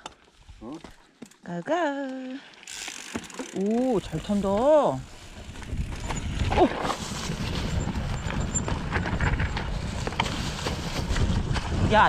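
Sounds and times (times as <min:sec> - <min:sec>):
bike rattling and knocking: 0:02.7 - 0:12.0
bike tyres rumbling on dirt: 0:02.7 - 0:12.0.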